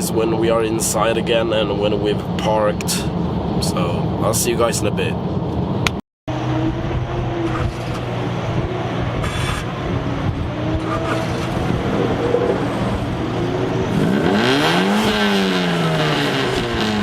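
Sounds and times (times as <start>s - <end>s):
car engine revving: 6.3s - 17.0s.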